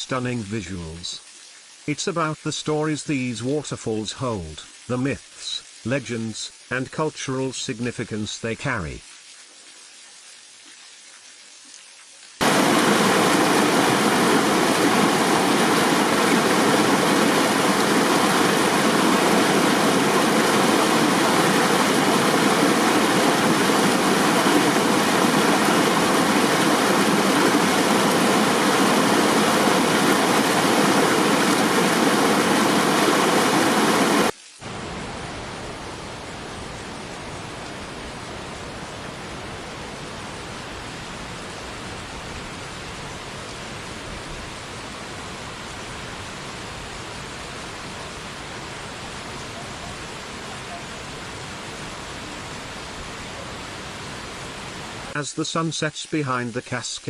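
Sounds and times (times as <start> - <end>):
waterfall roaring: 12.4 - 55.4.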